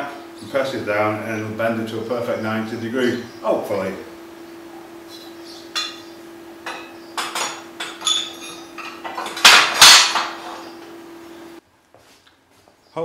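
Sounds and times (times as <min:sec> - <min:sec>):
steady hum: 0:00.0 - 0:11.6
steel pieces clanking: 0:06.7 - 0:10.6.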